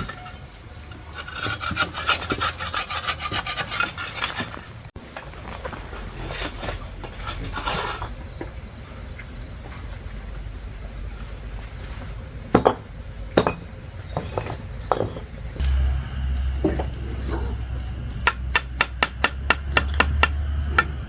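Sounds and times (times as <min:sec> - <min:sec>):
scraping and rubbing strokes: 0:01.1 - 0:08.1.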